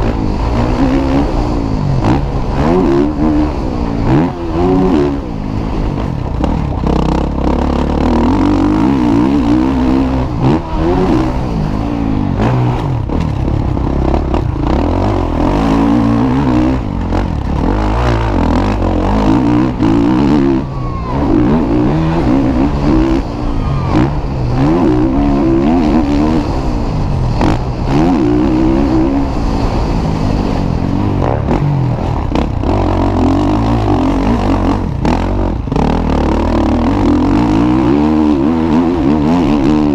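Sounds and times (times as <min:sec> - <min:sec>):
motocross bike engines revving: 0:00.0 - 0:39.9.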